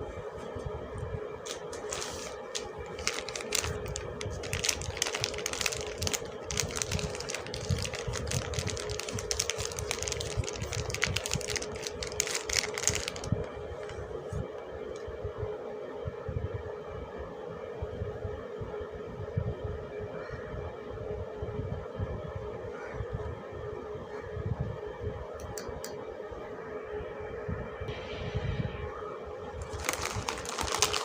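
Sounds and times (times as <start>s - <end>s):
steady hum: 0.0s - 31.0s
packaging crinkling: 1.4s - 14.0s, 29.6s - 31.0s.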